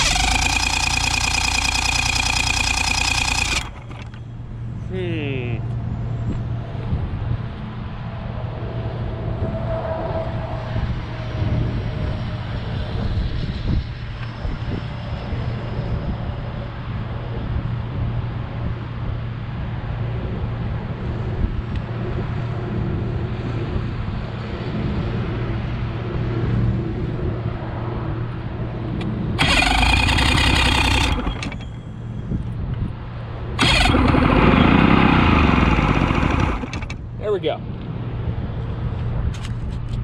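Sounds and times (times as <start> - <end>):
outboard engine running: 0.0 - 4.2, 29.4 - 31.8, 33.6 - 37.1.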